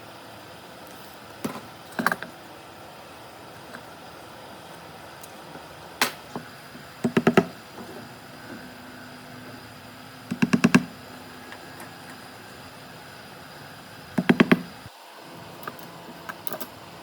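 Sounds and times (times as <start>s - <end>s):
sharp knocks on wood: 7.0s - 7.6s, 14.2s - 14.7s.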